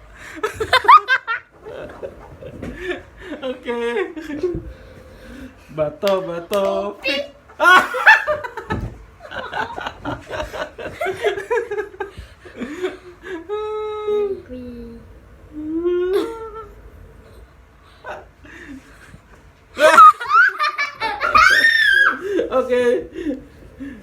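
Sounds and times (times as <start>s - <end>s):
non-word vocal sounds: 13.4s - 18.0s
hummed tone: 13.5s - 19.2s
person laughing: 15.8s - 16.7s, 19.8s - 23.4s.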